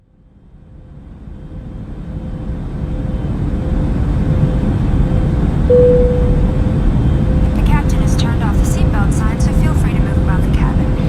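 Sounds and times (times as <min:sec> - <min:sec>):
airliner cabin engine rumble: 0:02.6 - 0:11.0
faint steady hum: 0:05.7 - 0:11.0.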